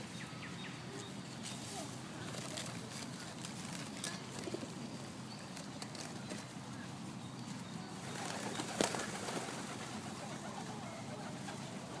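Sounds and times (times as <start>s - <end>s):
outdoor background hum: 0.0s - 12.0s
pigeons cooing: 8.0s - 12.0s.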